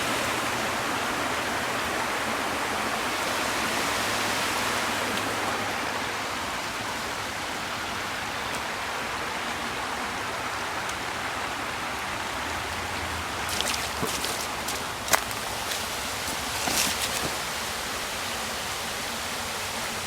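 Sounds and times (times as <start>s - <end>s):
waterfall water rushing and splashing: 0.0s - 20.0s
short crackles: 13.5s - 17.5s.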